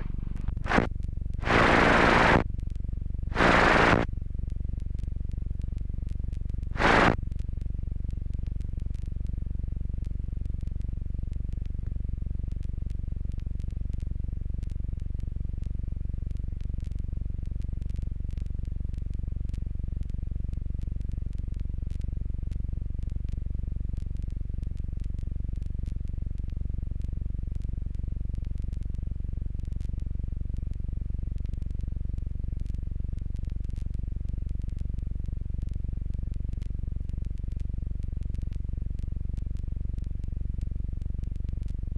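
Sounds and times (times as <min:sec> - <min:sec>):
aircraft engine and propeller drone: 0:01.4 - 0:02.3, 0:03.4 - 0:03.9.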